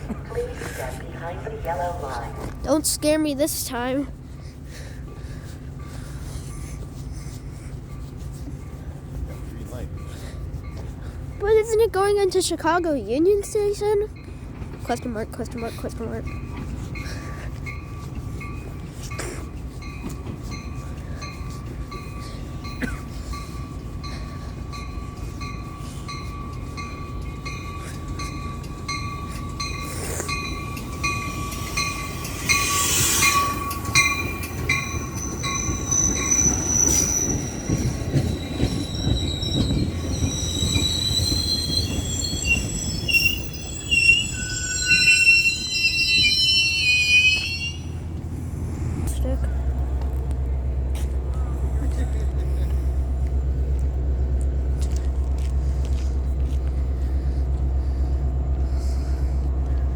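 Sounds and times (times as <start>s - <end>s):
commuter train rumble: 0.0s - 59.9s
steel wheels squealing: 25.4s - 48.1s.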